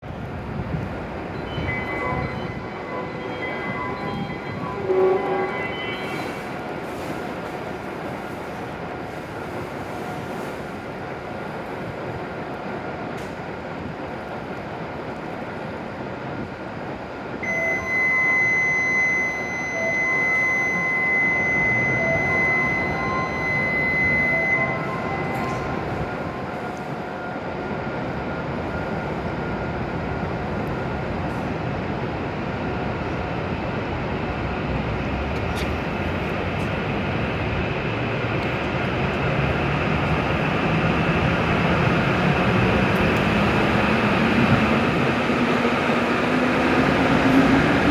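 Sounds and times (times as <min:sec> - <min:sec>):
train pulling out: 0:00.1 - 0:14.9, 0:16.8 - 0:47.9
electronic departure signal tone: 0:01.2 - 0:07.1, 0:17.4 - 0:29.4.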